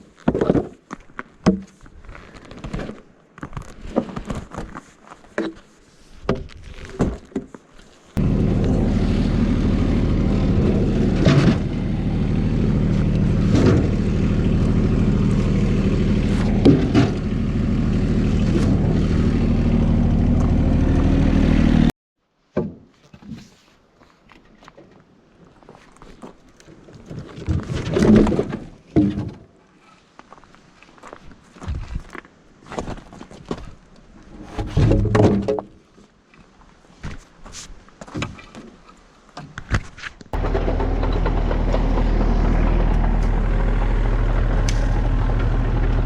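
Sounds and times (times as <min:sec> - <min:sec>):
small engine running: 0:08.2 - 0:21.9, 0:40.4 - 0:46.0
handling clatter and knocks: 0:12.8 - 0:17.4.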